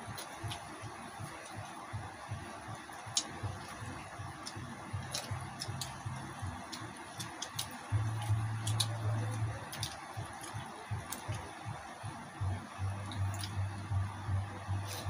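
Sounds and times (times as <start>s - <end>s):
low hum: 0.0s - 15.0s
people chewing: 3.0s - 11.5s, 13.0s - 13.8s.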